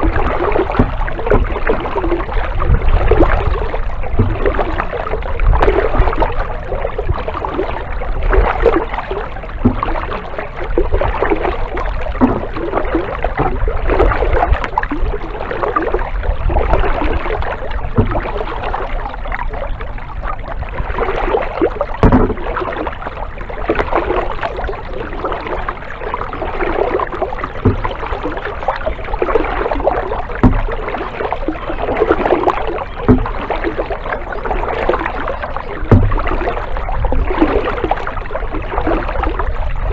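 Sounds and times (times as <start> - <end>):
paddle strokes splashing water: 0.0 - 39.9
sharp knocks: 35.9 - 36.2.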